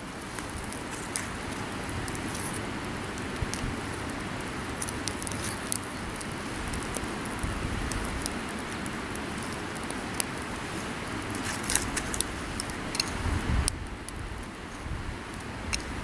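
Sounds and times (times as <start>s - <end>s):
fire starter scraping and clicking: 0.1s - 16.0s.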